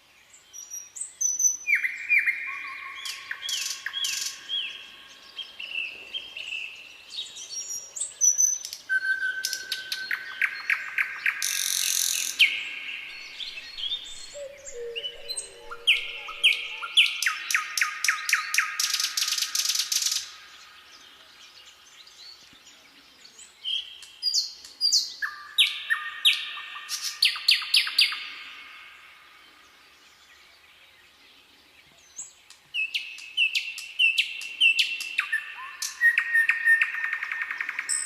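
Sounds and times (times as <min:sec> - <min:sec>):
songbirds singing and calling: 0:00.0 - 0:38.0
lower longer bird call: 0:08.9 - 0:20.7.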